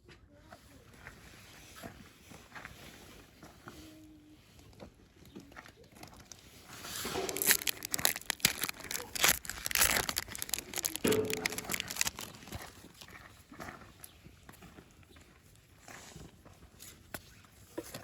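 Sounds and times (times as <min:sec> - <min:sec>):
foil wrapper crinkling and tearing: 0:05.8 - 0:13.2.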